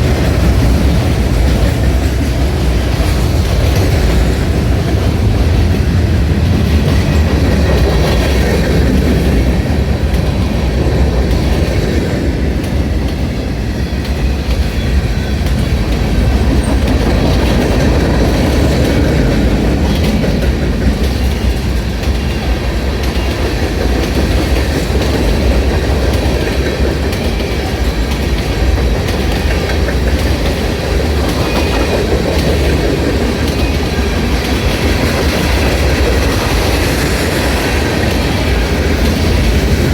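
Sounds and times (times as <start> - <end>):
clickety-clack over rail joints: 0.0 - 39.9
freight train wheels rumbling: 0.0 - 39.9.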